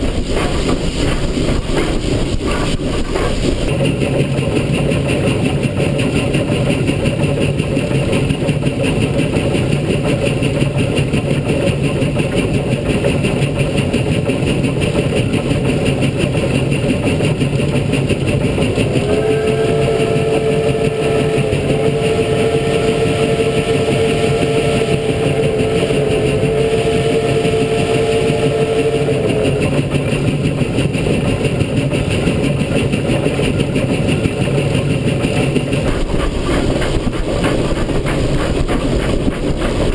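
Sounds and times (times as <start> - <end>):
steam locomotive rumbling: 0.0 - 39.9
steam whistle blasts: 18.8 - 29.7.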